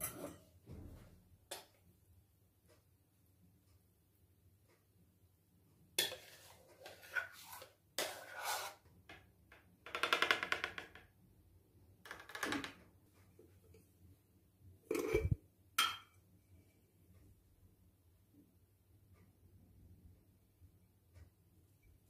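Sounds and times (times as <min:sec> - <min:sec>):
dishes clinking: 0:14.9 - 0:16.2.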